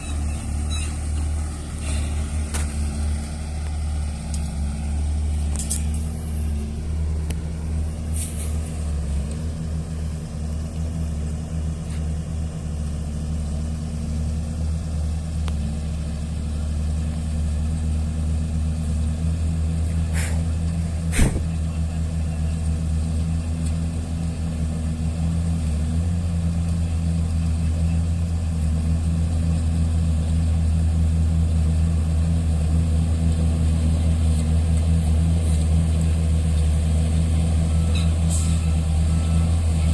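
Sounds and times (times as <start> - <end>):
heavy diesel engine droning: 0.0 - 39.9
sharp knock: 21.1 - 21.5.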